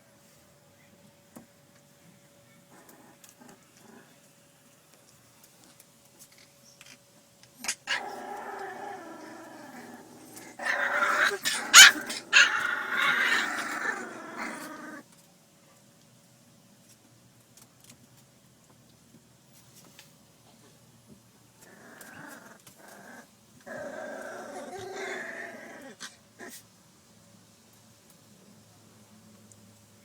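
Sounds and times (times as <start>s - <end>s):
puppies growling: 2.7s - 4.2s, 7.6s - 15.0s, 21.6s - 26.6s.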